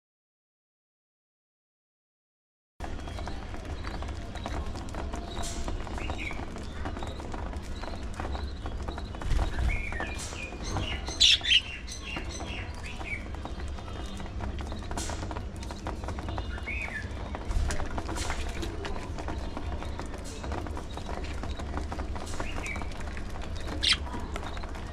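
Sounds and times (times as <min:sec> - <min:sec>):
budgerigars chirping: 0:10.7 - 0:12.1, 0:23.6 - 0:24.1.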